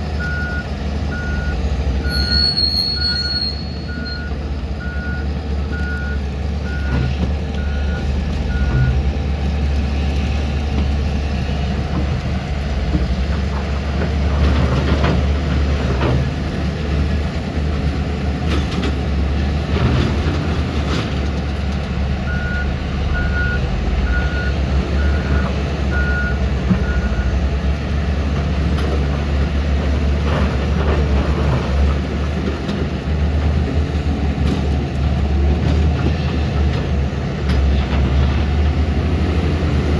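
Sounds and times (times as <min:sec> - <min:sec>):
heavy diesel machinery running: 0:00.0 - 0:39.9
reversing alarm beeping: 0:00.2 - 0:09.0, 0:22.3 - 0:27.3.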